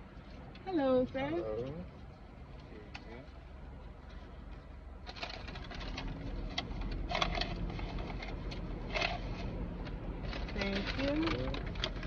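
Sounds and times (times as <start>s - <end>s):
low steady hum: 0.0s - 12.0s
paper bags rustling and crinkling: 10.2s - 12.0s.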